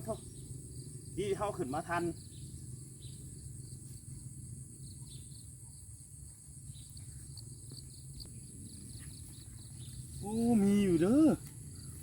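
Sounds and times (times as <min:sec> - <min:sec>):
insects droning: 0:00.0 - 0:12.0
low steady rumble: 0:00.0 - 0:12.0.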